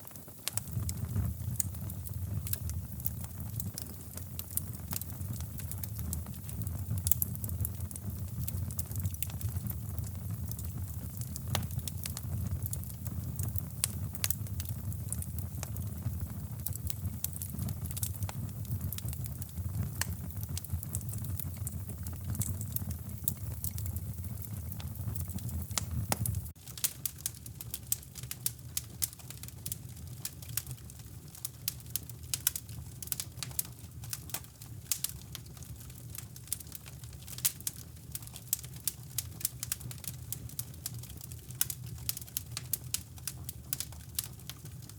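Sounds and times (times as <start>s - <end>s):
sharp pops of fire: 0.0s - 30.9s
wood fire crackling: 0.0s - 44.9s.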